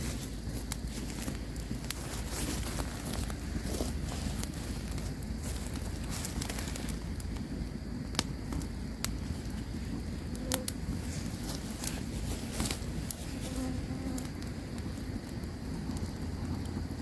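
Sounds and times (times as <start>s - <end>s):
campfire crackling and popping: 0.0s - 17.0s
buzzing insect flying: 13.2s - 14.4s.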